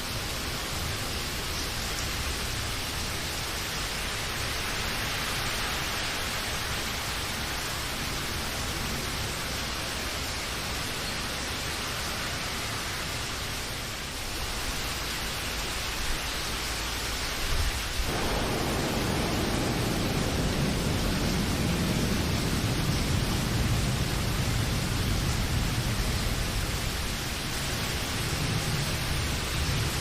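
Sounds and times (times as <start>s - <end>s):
steady rain hiss: 0.0s - 30.0s
deep rushing noise: 18.1s - 26.6s.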